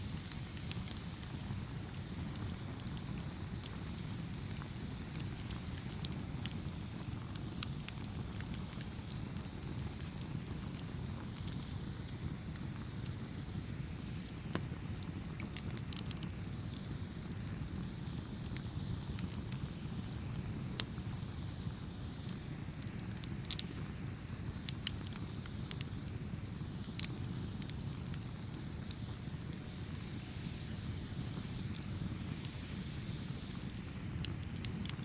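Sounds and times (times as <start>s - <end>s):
burning wood crackling and popping: 0.0s - 35.0s
low rumble of campfire flames: 0.0s - 35.0s.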